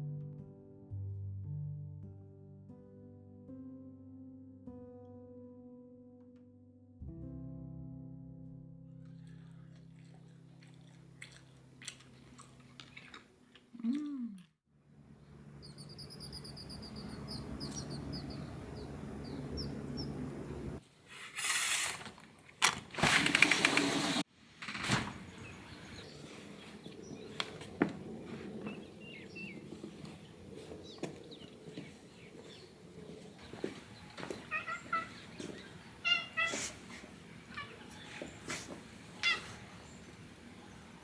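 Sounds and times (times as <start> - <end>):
steady low hum: 14.9 - 20.8
bird trilling: 15.6 - 20.3, 33.4 - 36.7, 39.2 - 40.0.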